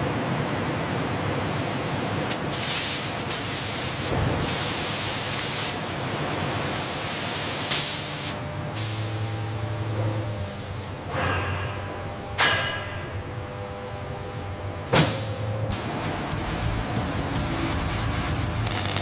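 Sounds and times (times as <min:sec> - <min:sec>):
hissing spray bursts: 0:01.4 - 0:11.0.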